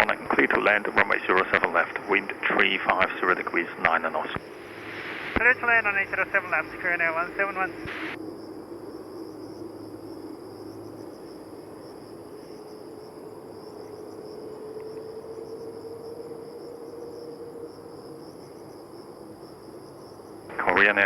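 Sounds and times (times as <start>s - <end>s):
background hiss: 0.0s - 21.0s
insect buzzing: 4.0s - 20.5s.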